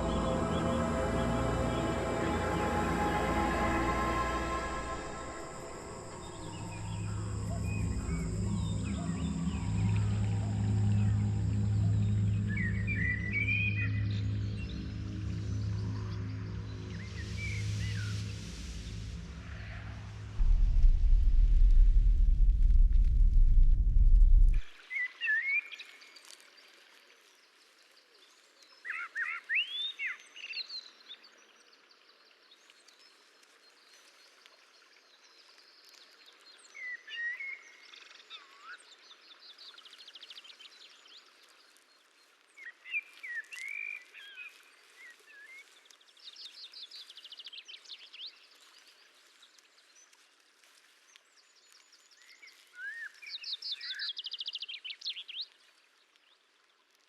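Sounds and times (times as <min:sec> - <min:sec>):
bird calls and trills: 0:00.0 - 0:19.0, 0:24.8 - 0:56.4
faint outdoor hiss: 0:00.0 - 0:24.7.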